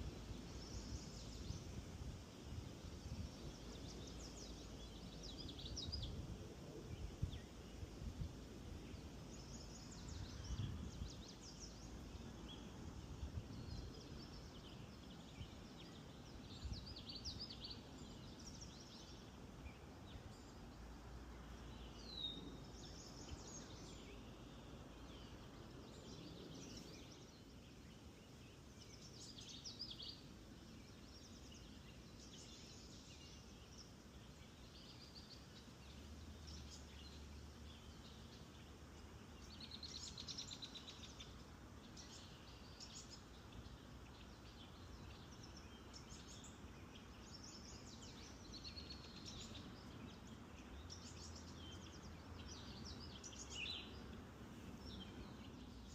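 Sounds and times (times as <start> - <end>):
faint low background noise: 0.0 - 55.9
songbirds singing and calling: 0.0 - 55.9.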